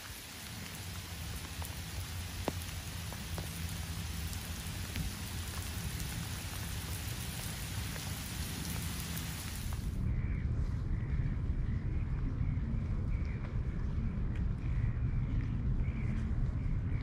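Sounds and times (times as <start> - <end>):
heavy rain on water and stone: 0.0 - 10.0
sharp raindrop hits: 0.0 - 10.0
wind rumble on microphone: 0.1 - 17.0.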